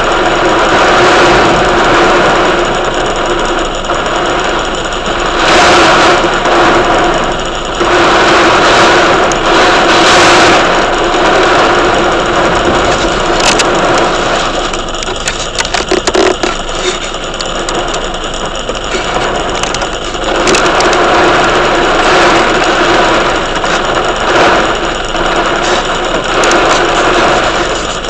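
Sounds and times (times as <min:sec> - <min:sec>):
heavy rain: 0:00.0 - 0:28.0
wind: 0:00.0 - 0:28.0.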